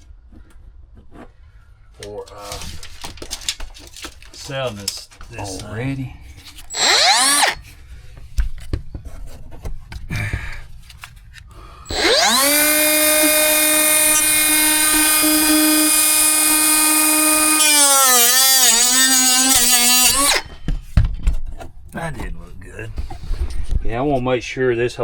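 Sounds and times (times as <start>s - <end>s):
power tool whining and bogging: 6.7s - 7.6s, 11.9s - 20.6s.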